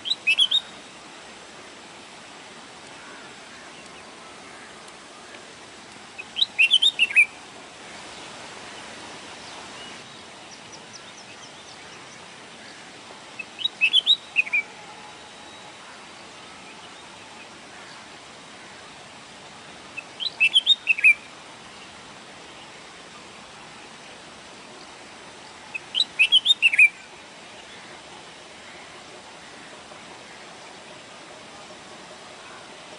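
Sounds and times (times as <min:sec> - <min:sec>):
steady background hiss: 0:00.0 - 0:32.9
sparrow chirping: 0:06.2 - 0:07.3, 0:13.4 - 0:14.7, 0:20.0 - 0:21.2, 0:25.7 - 0:26.9.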